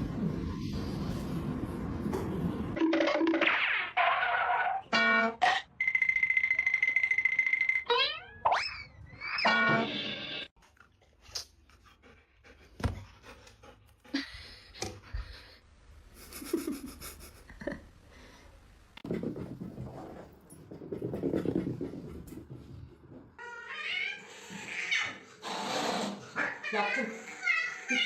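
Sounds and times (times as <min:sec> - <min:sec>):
pet panting: 0:11.6 - 0:15.6.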